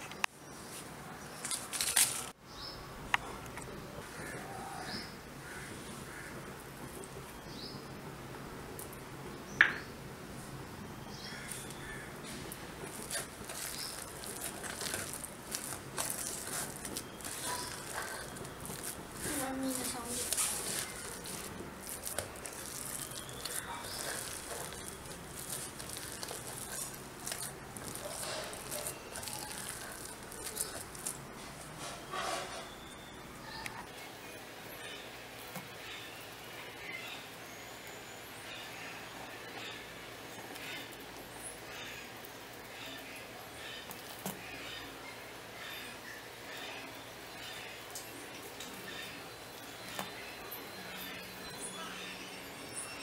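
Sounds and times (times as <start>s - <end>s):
birds calling: 11.0s - 34.1s
wet squishing of kneaded mixture: 11.1s - 34.0s
fingers brushing metal bowl: 12.8s - 32.8s.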